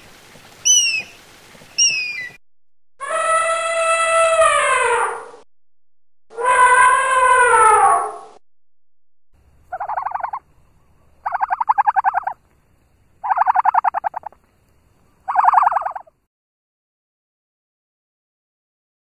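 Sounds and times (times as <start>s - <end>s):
animal calling: 0.6s - 1.2s, 1.8s - 2.4s, 6.3s - 8.4s, 9.6s - 10.4s, 11.2s - 12.4s, 13.2s - 14.4s, 15.3s - 16.1s
short rattling animal calls: 0.6s - 2.4s, 9.5s - 10.5s, 11.1s - 12.5s, 13.2s - 14.6s, 15.2s - 16.1s.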